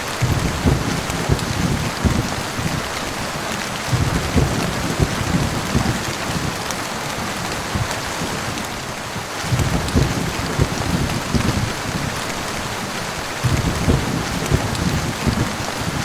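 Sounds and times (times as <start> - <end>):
low rumble of thunder: 0.0 - 16.0
rain falling on a surface: 0.0 - 16.0.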